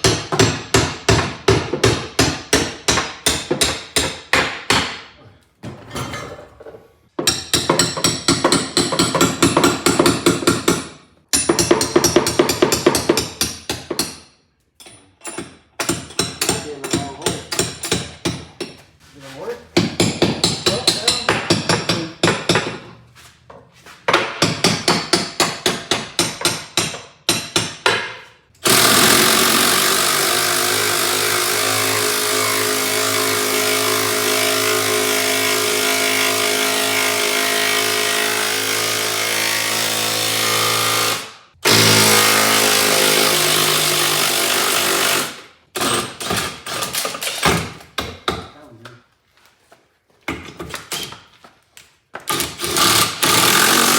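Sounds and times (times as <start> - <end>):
power tool running: 28.6 - 45.4, 52.3 - 53.9.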